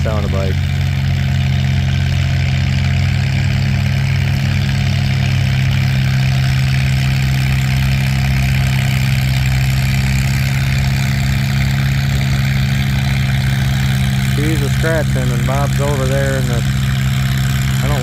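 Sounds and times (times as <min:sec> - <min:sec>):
tractor engine idling: 0:00.0 - 0:18.0.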